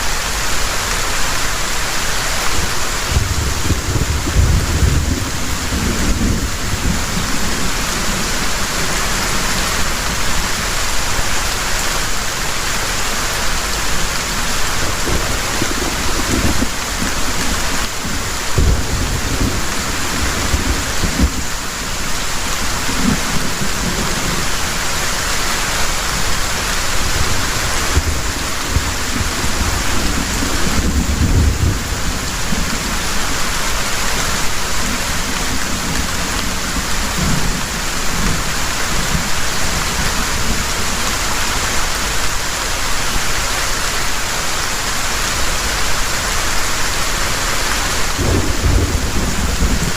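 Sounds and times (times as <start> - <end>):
heavy rain pouring: 0.0 - 49.9
low thunder rumbles: 3.0 - 10.4, 14.7 - 24.8, 27.0 - 33.2, 48.1 - 49.9.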